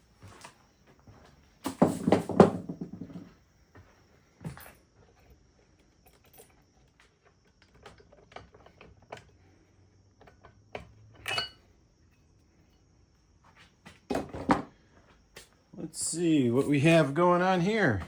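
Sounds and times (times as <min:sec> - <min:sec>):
metal tools clicking and knocking: 0:11.2 - 0:11.6
ringing metallic clink: 0:11.3 - 0:11.6.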